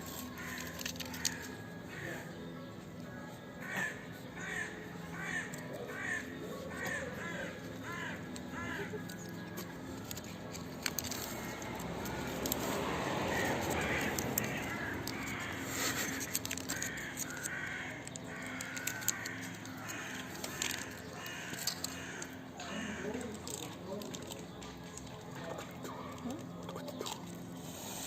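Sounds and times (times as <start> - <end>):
crows cawing: 0.1 - 26.6
sharp clicks: 8.2 - 25.9.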